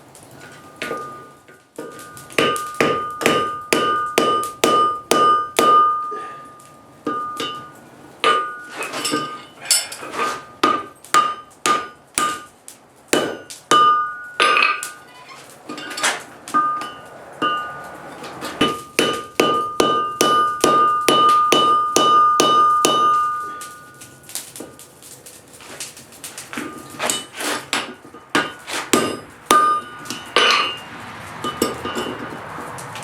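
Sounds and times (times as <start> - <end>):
hammer striking anvil: 0.8 - 6.4, 7.0 - 9.8, 10.6 - 12.5, 13.1 - 15.0, 15.8 - 17.8, 18.6 - 23.8, 26.6 - 30.8.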